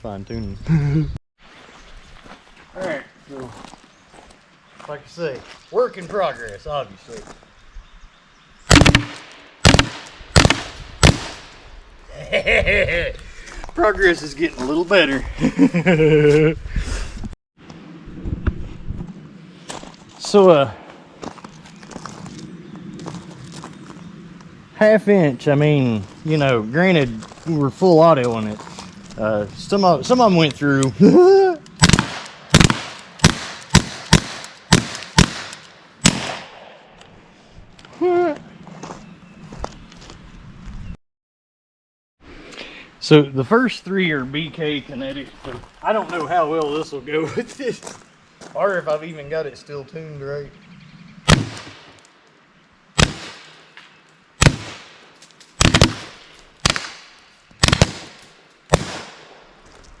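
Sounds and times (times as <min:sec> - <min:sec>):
air launcher shots cracking: 0:08.7 - 0:11.6, 0:31.8 - 0:36.9, 0:51.3 - 0:52.0, 0:53.0 - 0:53.6, 0:54.4 - 0:55.0, 0:55.6 - 0:59.4.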